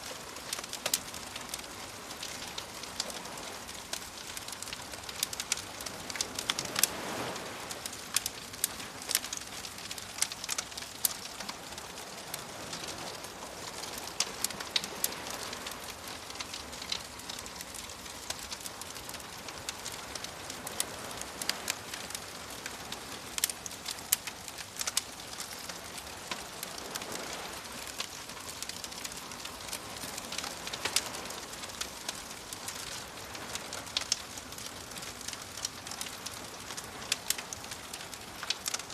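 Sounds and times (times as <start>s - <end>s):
bonfire crackling and popping: 0.0s - 38.9s
gentle waves hissing: 0.0s - 38.9s.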